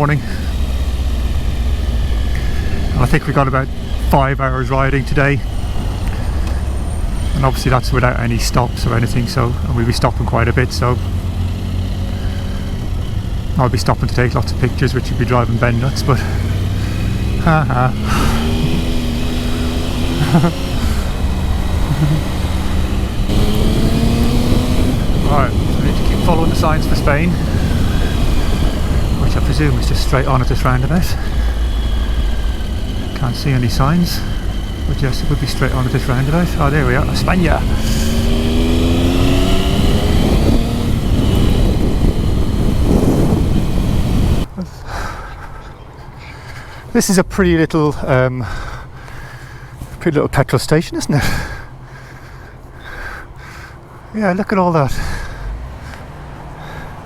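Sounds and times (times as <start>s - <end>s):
motorcycle engine running: 0.0s - 44.7s
wind rumble on microphone: 19.4s - 44.6s.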